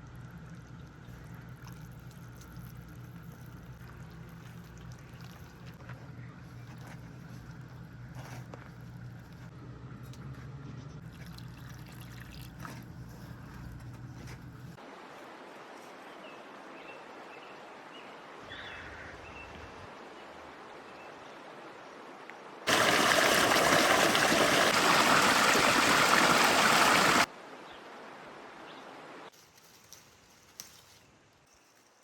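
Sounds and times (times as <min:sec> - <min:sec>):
running water rushing: 0:22.7 - 0:27.3.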